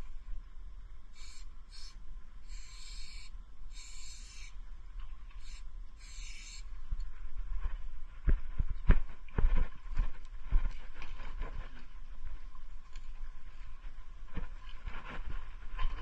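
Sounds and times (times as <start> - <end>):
low steady rumble: 0.0 - 16.0
marker scratching on surface: 2.5 - 4.5, 5.4 - 6.6.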